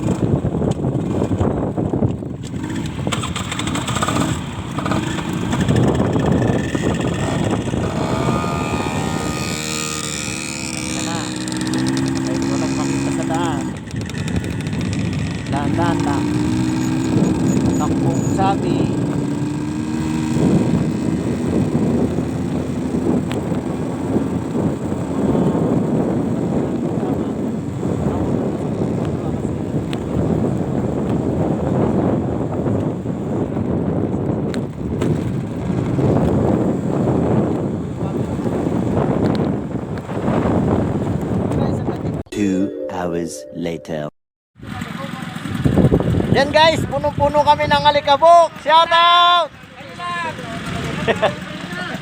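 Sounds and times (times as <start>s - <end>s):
vehicle engine running: 0.0s - 31.5s
wind rushing over microphone: 0.0s - 42.3s, 45.4s - 48.6s.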